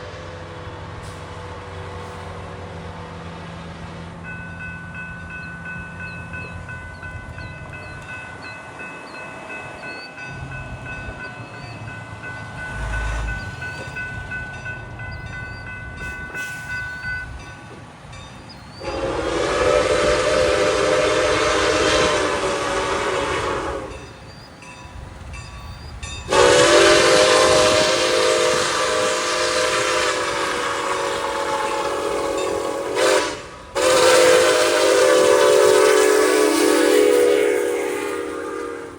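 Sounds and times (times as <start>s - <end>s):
locomotive air horn blasts: 18.8s - 24.1s, 26.3s - 38.9s.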